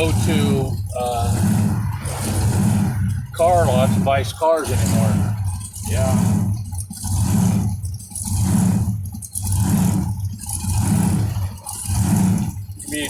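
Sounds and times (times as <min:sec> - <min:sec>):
supercharged engine rumble surging: 0:00.0 - 0:13.0.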